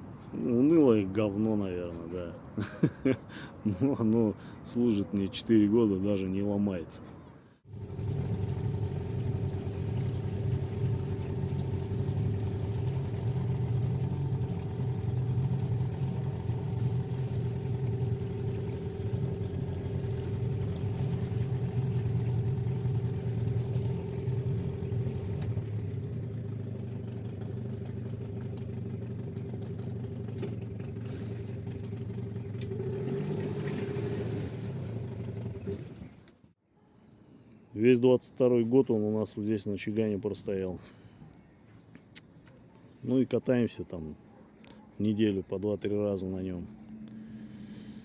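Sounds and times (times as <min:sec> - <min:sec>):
outboard motor running: 0:07.7 - 0:36.2.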